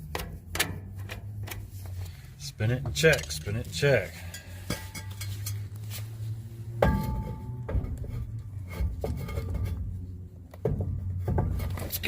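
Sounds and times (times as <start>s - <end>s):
metal clinks and scrapes: 3.0s - 10.1s
loud ringing metal clank: 6.8s - 8.4s.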